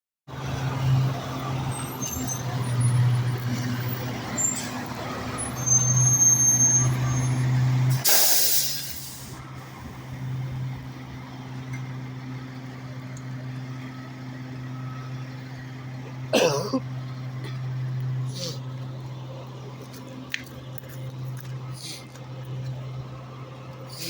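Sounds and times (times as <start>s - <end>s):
diesel engine running: 0.3s - 24.0s
air brake hiss: 7.9s - 9.4s.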